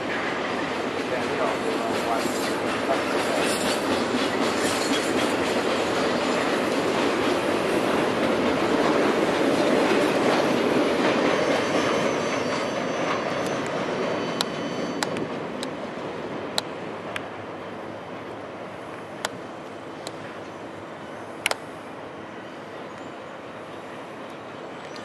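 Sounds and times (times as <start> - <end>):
freight train wheels clattering: 0.0 - 15.8
high wheel squeal: 11.2 - 15.3.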